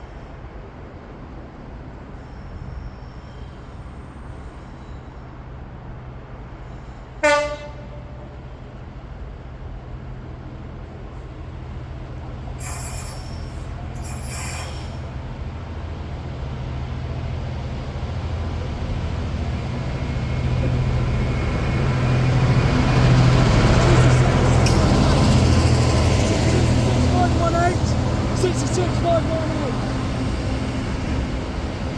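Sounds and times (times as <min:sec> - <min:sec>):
diesel locomotive engine rumble: 0:00.0 - 0:31.9
train wheel noise: 0:10.6 - 0:31.9
high hissing: 0:12.6 - 0:15.4, 0:23.8 - 0:29.8.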